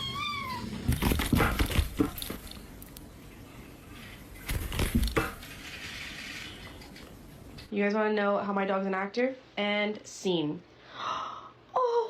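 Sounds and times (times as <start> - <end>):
cat meowing: 0.0 - 0.8
knocking and scuffling: 4.4 - 5.4.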